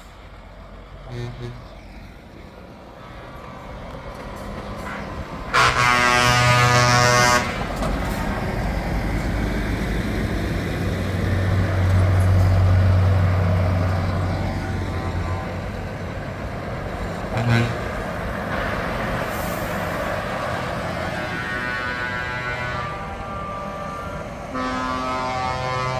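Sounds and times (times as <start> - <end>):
truck engine passing: 0.0 - 25.9
truck horn blast: 1.0 - 1.8, 4.9 - 7.8, 17.3 - 18.7, 20.8 - 25.9.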